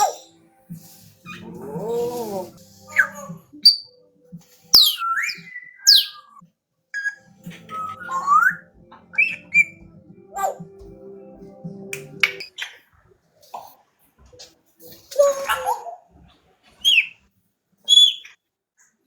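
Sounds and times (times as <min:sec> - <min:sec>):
parrot whistling: 0:01.2 - 0:04.0, 0:04.7 - 0:06.4, 0:07.0 - 0:10.6, 0:16.8 - 0:17.2, 0:17.9 - 0:18.4.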